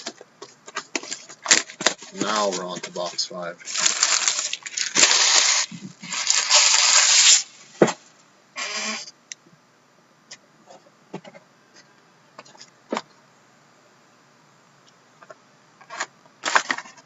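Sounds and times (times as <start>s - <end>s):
packaging ripping: 0.8s - 7.6s.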